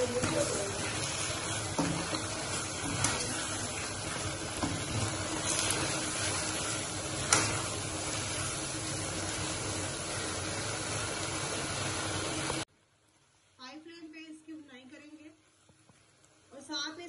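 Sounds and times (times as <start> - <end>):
spatula scraping a pan: 0.0 - 8.6
carrots sizzling in a pan: 0.0 - 12.7.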